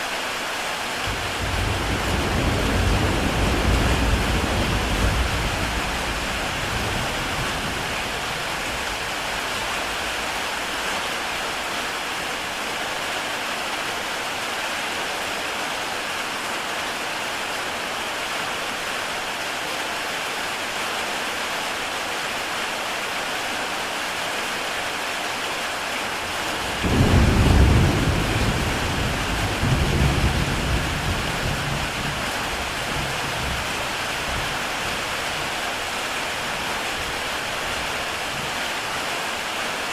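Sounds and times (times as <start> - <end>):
heavy rain on a tile roof: 0.0 - 39.9
thunder rumbling: 1.1 - 10.4, 26.3 - 35.8.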